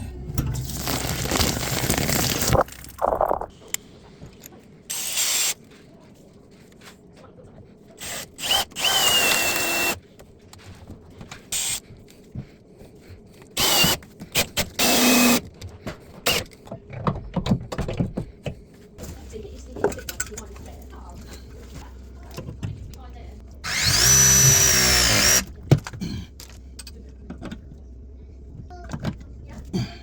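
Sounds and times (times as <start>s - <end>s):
power drill whining: 8.0s - 10.0s, 13.6s - 14.0s, 14.8s - 15.4s, 23.6s - 25.5s.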